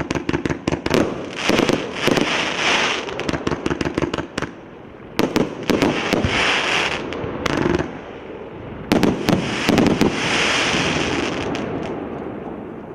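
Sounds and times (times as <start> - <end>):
firework volleys firing: 0.0 - 4.5, 5.2 - 8.1, 8.9 - 12.1.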